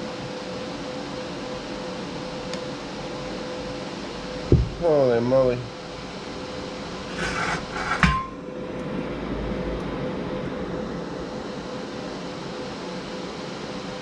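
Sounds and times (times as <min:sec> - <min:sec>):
cooling fan humming: 0:00.0 - 0:14.0.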